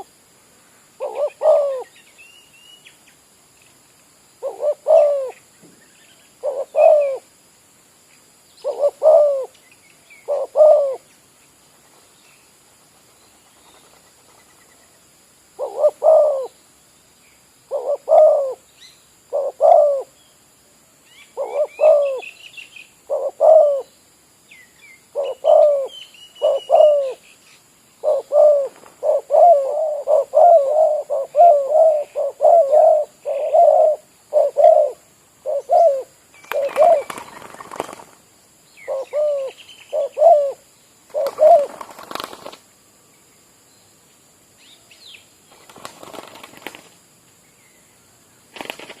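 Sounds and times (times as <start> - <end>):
dove cooing: 1.0 - 1.9, 4.4 - 5.4, 6.4 - 7.3, 8.6 - 9.5, 10.2 - 11.0, 15.6 - 16.6, 17.7 - 18.6, 19.3 - 20.2, 21.4 - 22.3, 23.1 - 23.9, 25.1 - 27.2, 28.0 - 38.0, 38.8 - 42.6
small birds chirping: 21.0 - 49.0.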